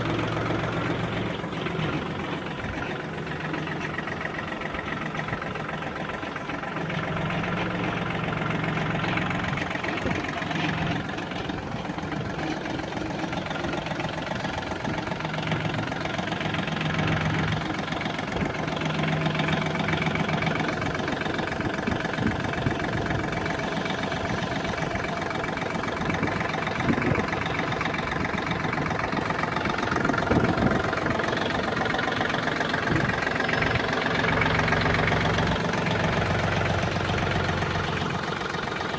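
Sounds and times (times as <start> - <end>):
diesel tractor engine idling: 0.0 - 38.9.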